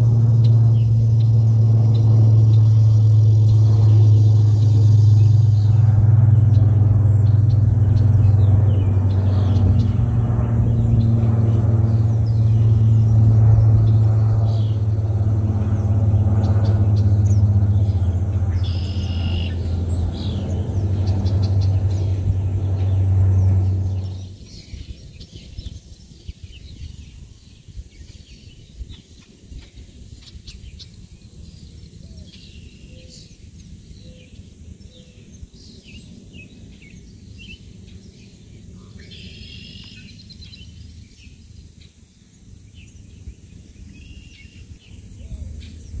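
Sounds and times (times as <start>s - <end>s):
low outdoor rumble: 0.0s - 25.3s
birds chirping and calling: 3.6s - 24.3s.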